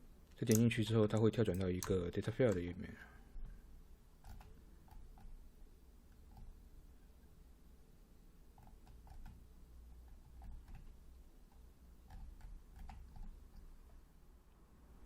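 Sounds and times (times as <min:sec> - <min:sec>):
low room hum: 0:00.0 - 0:15.0
computer mouse clicks: 0:04.2 - 0:05.4, 0:08.5 - 0:09.4, 0:10.0 - 0:13.7.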